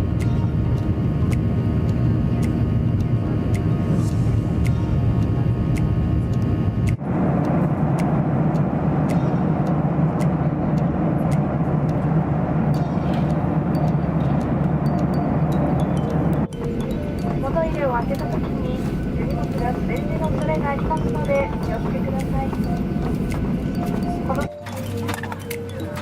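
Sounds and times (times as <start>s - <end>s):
airplane cabin drone: 0.0s - 26.0s
background music: 0.0s - 26.0s.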